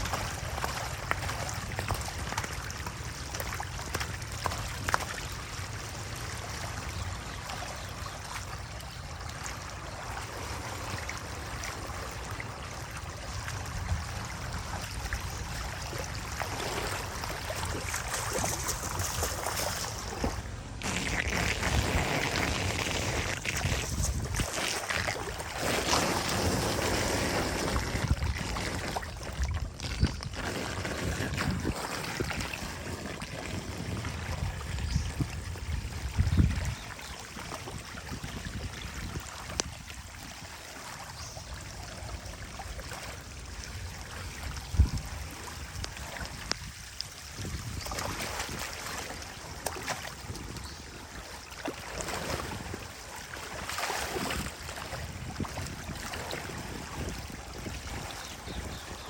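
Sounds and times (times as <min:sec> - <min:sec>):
water rushing and splashing: 0:00.0 - 0:59.0
wind on the microphone: 0:13.2 - 0:40.5, 0:43.6 - 0:51.2, 0:52.0 - 0:59.0.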